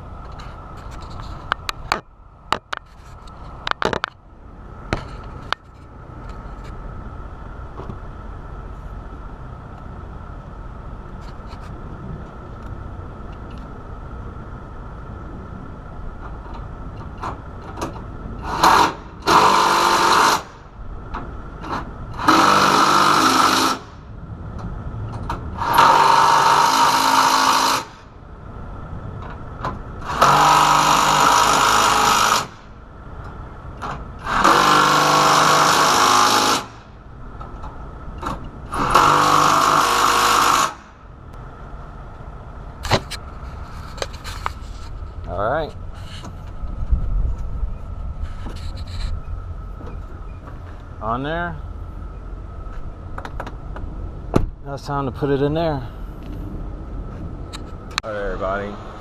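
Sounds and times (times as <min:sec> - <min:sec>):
low hum: 0:00.0 - 0:59.0
power drill whining: 0:18.4 - 0:20.6, 0:22.2 - 0:23.9, 0:25.6 - 0:28.0, 0:30.0 - 0:32.6, 0:34.2 - 0:36.8, 0:38.7 - 0:40.8.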